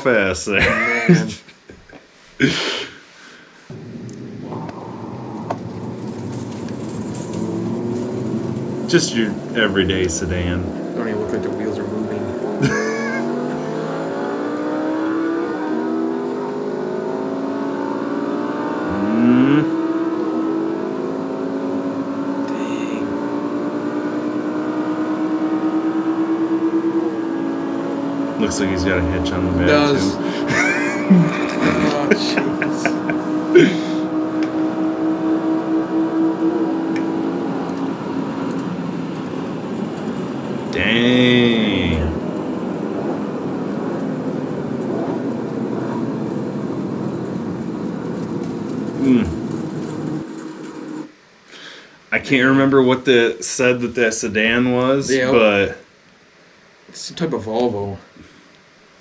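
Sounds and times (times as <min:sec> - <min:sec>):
car engines at full throttle: 0:03.7 - 0:51.1.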